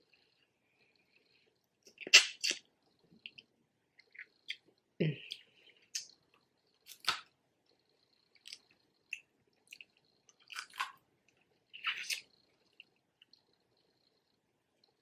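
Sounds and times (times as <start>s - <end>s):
wet chewing and biting: 6.8s - 7.3s, 8.4s - 11.0s.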